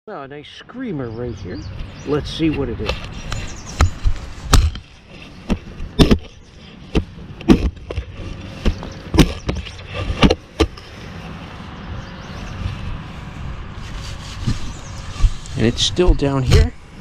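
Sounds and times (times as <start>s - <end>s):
shovel chopping into ground: 2.8s - 10.8s, 16.1s - 16.7s.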